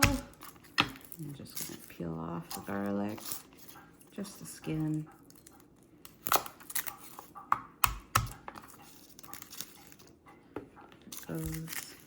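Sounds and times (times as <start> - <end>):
garlic skin crackling and tearing: 6.0 - 7.2.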